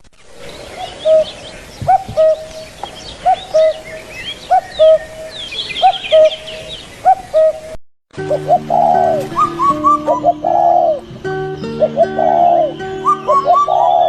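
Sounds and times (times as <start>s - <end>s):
small birds chirping and whistling: 0.4s - 14.0s.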